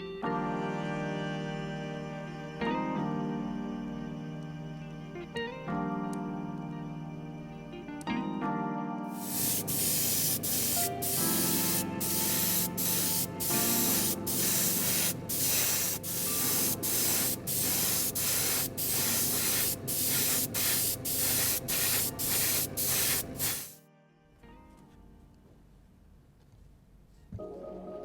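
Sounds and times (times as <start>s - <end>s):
music playing: 0.0s - 23.8s
paint spraying in short bursts: 9.2s - 23.8s.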